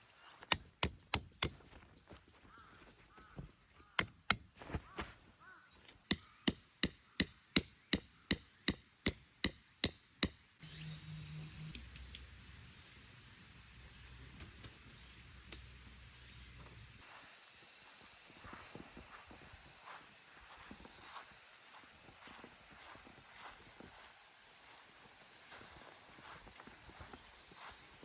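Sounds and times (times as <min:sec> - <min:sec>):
insects hissing and humming: 0:00.0 - 0:06.5, 0:07.8 - 0:28.0
sharp knocks of tool chopping: 0:00.4 - 0:01.7, 0:03.9 - 0:04.8, 0:06.0 - 0:10.4.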